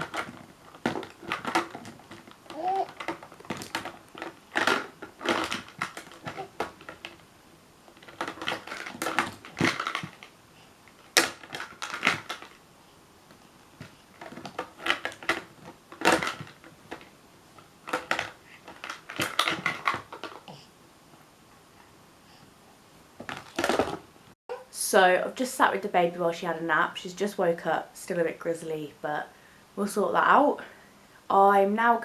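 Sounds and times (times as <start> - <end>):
toys clattering: 17.9 - 20.4.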